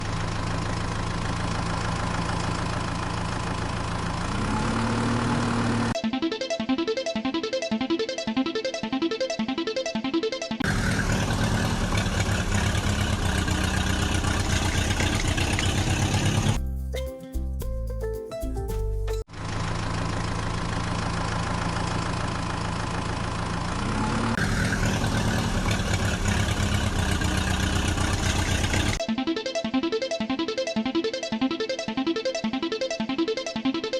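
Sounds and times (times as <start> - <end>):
heavy vehicle engine idling: 0.0 - 6.0, 10.6 - 16.6, 19.3 - 29.0.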